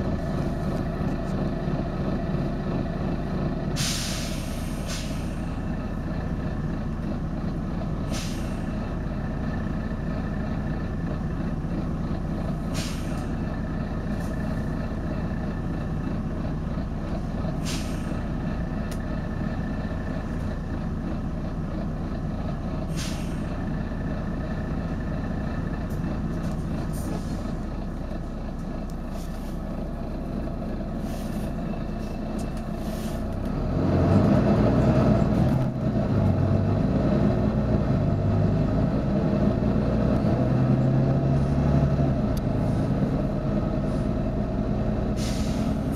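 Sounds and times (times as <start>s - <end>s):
bus engine running: 0.0s - 45.9s
sharp hiss of air: 3.8s - 5.5s.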